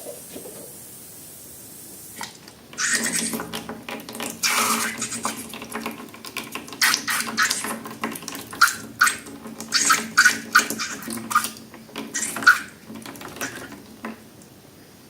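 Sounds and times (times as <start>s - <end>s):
wet slime squelching: 4.3s - 13.7s.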